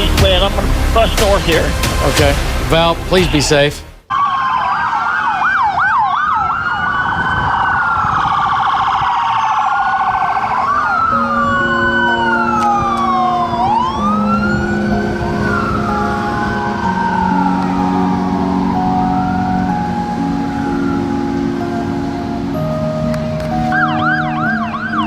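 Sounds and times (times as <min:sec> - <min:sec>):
emergency sirens wailing: 0:04.1 - 0:25.0
held keyboard notes: 0:10.6 - 0:25.0.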